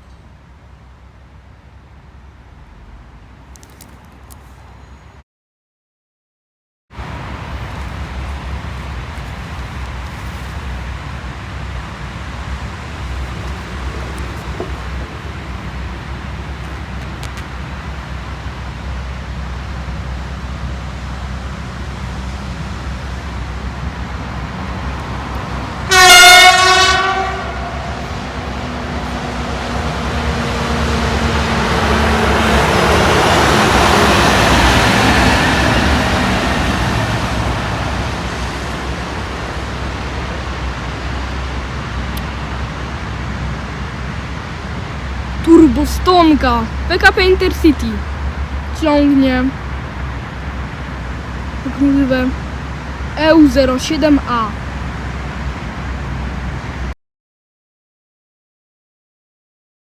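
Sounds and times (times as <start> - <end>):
train passing by: 0.0 - 5.2, 7.0 - 57.0
train horn blast: 25.6 - 34.8.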